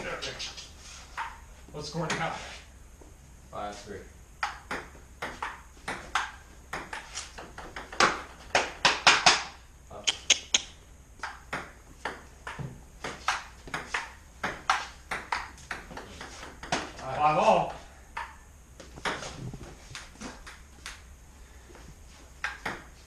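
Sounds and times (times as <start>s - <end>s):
table tennis ball clicking: 13.2s - 16.0s, 18.1s - 18.4s.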